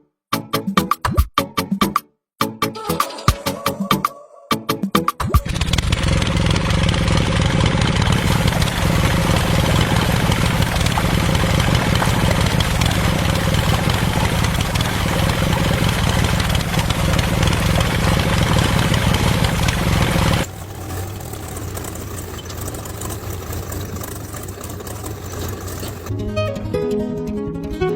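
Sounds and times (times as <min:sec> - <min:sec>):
engine humming: 0:05.4 - 0:27.3.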